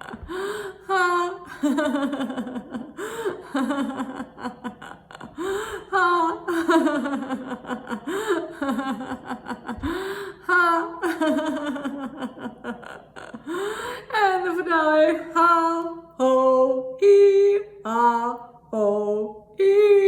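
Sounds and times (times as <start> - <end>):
woman laughing heartily: 0.0 - 14.1.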